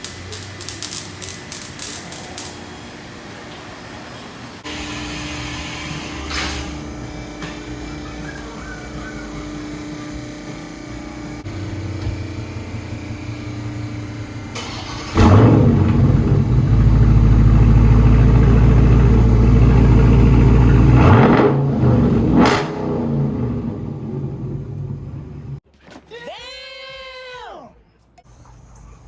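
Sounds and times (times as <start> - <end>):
car engine exhaust revving: 4.6 - 25.6.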